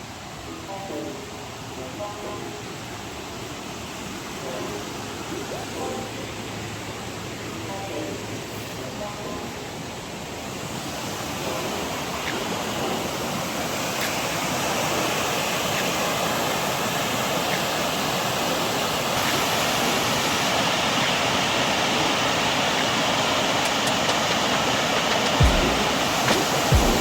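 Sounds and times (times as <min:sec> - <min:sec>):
waterfall cascading over rocks: 0:09.7 - 0:27.0.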